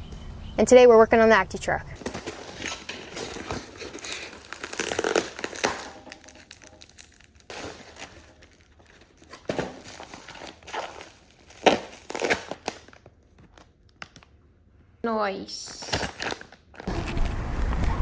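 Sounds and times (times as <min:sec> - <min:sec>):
packaging crinkling and tearing: 0:02.0 - 0:14.3, 0:16.0 - 0:17.3.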